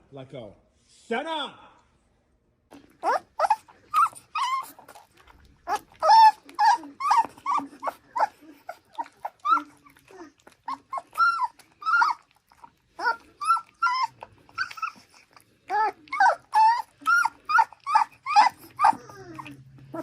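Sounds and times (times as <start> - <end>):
dog whining and yelping: 2.7 - 20.0.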